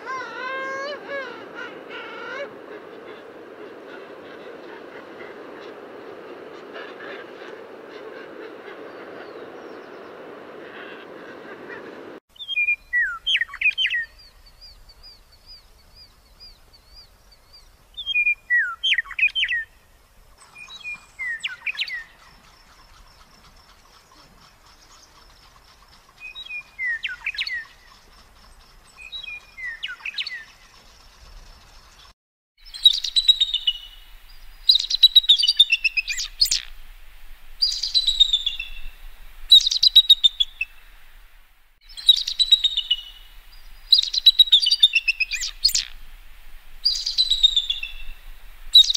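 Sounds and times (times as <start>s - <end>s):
birds chirping: 0.0s - 48.9s
steady hiss: 33.5s - 48.9s.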